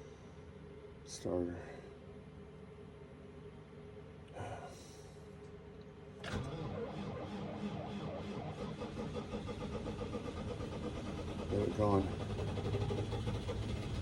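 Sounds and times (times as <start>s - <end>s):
starter cranking diesel engine: 6.2s - 14.0s.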